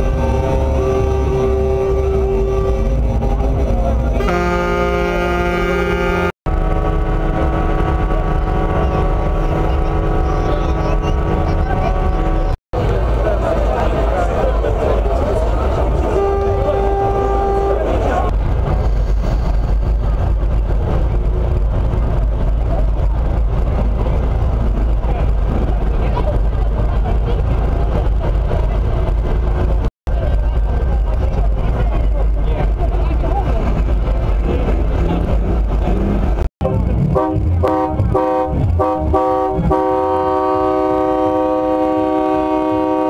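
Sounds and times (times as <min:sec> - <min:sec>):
heavy truck engines rumbling: 0:00.0 - 0:43.0
truck air horn blasts: 0:00.1 - 0:10.4, 0:16.0 - 0:18.3, 0:37.0 - 0:43.0.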